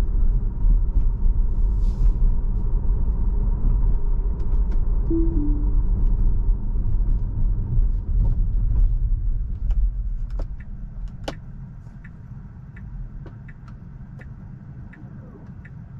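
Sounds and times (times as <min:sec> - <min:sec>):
road and tyre rumble in car: 0:00.0 - 0:15.9.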